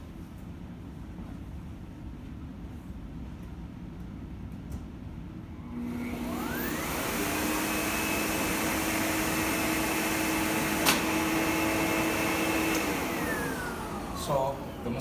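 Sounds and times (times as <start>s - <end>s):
vacuum cleaner motor whine: 5.6s - 15.0s.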